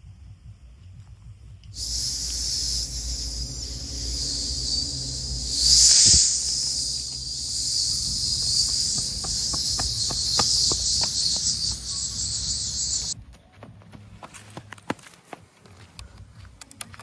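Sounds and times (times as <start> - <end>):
low engine rumble: 1.8 - 13.2
shrill insect chorus: 1.8 - 13.2.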